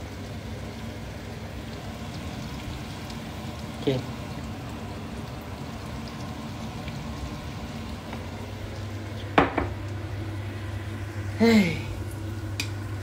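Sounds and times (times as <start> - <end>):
sambal sizzling in a pan: 0.0 - 13.0
glass jar knocking on countertop: 9.4 - 9.8.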